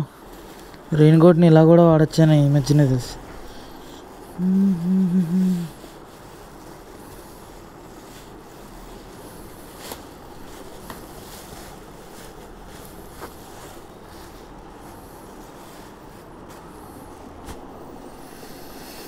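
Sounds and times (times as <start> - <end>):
person humming: 4.4 - 5.8.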